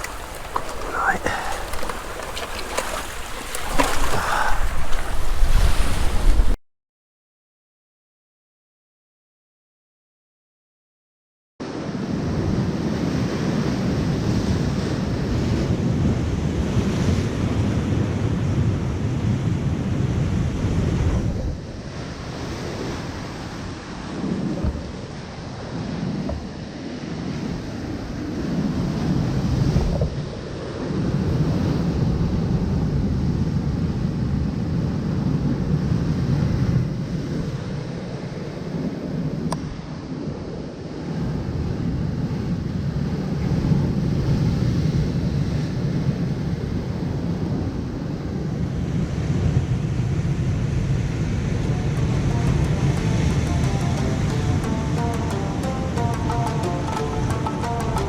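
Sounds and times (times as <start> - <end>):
ocean surf: 0.0 - 6.6, 48.9 - 58.0
wind buffeting microphone: 0.0 - 6.6.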